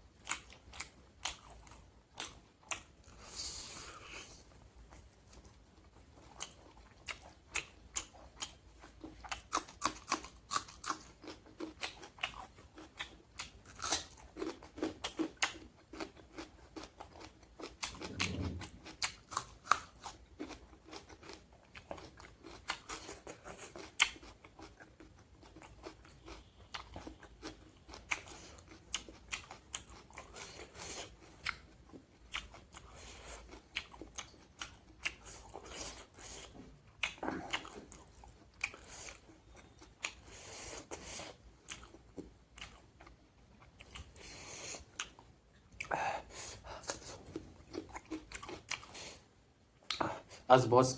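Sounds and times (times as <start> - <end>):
person chewing crunchy food: 0.1 - 50.5
brief low sound: 18.0 - 18.8.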